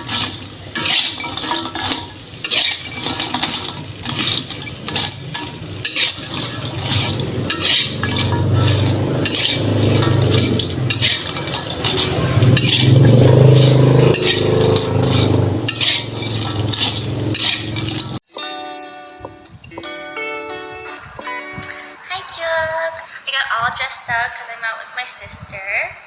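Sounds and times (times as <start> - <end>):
food sizzling in a pan: 0.0 - 18.2
utensil scraping a pan: 0.0 - 18.2.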